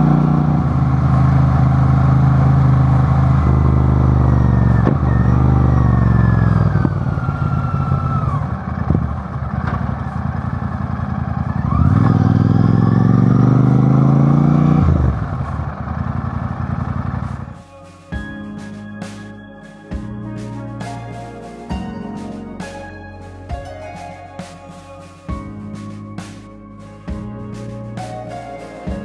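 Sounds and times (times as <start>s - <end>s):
vehicle engine under load: 0.0s - 17.5s
music: 17.2s - 29.0s.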